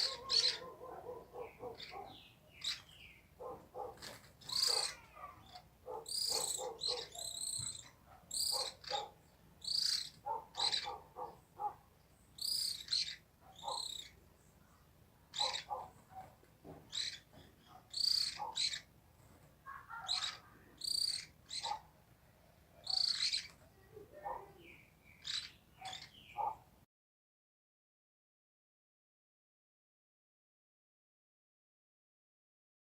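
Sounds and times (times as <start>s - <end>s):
birds chirping: 0.0s - 19.0s, 19.6s - 26.7s.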